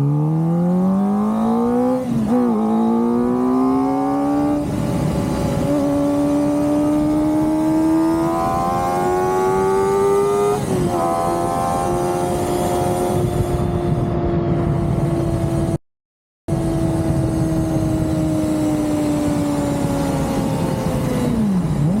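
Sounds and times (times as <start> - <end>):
motorcycle engine revving high: 0.0 - 15.8, 16.5 - 22.0.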